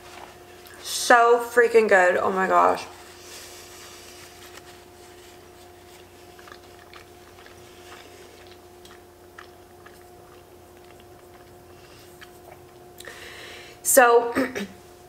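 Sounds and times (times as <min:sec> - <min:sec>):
faint two-tone hum: 0:00.0 - 0:15.0
person chewing food: 0:03.1 - 0:13.2
wet mouth clicks: 0:06.3 - 0:13.1.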